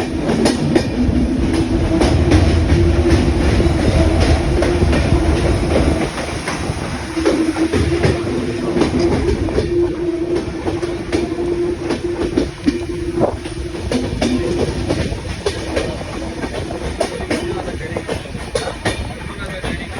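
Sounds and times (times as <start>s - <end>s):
clickety-clack of train wheels: 0.0s - 19.9s
train rumbling along track: 0.0s - 19.9s.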